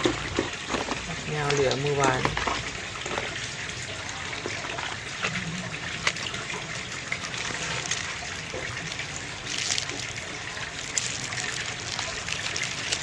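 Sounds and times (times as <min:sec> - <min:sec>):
small metal parts clicking: 0:09.4 - 0:13.0.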